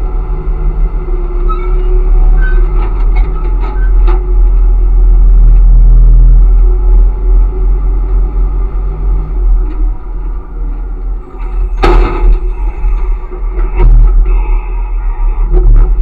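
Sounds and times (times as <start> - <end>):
garbage truck rumbling: 0.0 - 16.0
clattering knocks: 10.7 - 14.2.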